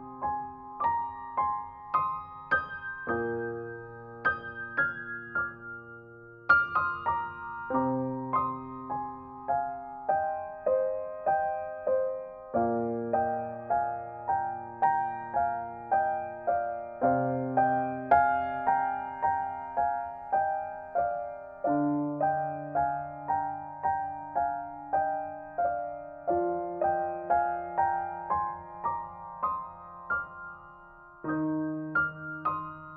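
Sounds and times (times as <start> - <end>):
gentle solo piano music: 0.0 - 32.9.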